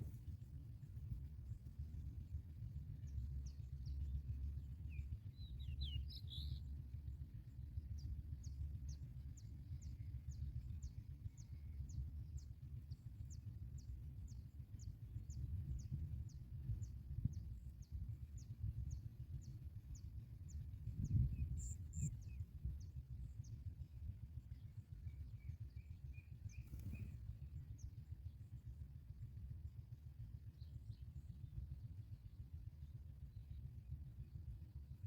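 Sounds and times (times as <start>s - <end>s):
low rumble: 0.0s - 35.0s
small bird chirping: 14.3s - 23.6s, 24.5s - 27.9s.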